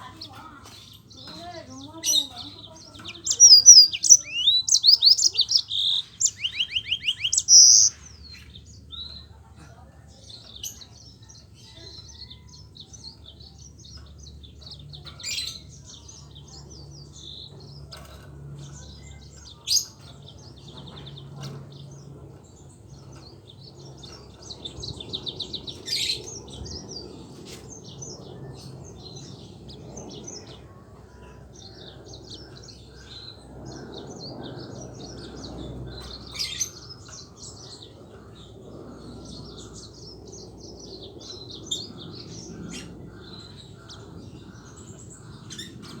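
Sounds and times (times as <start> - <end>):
canary singing: 0.0 - 9.4.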